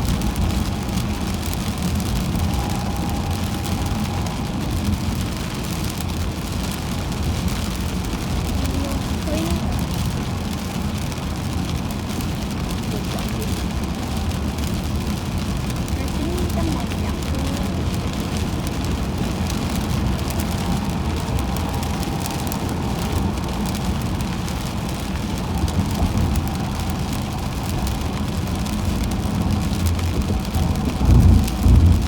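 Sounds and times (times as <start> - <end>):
heavy low thumps: 0.0 - 10.2
hiss of rain and spray: 0.0 - 32.0
road and tyre rumble: 0.0 - 32.0.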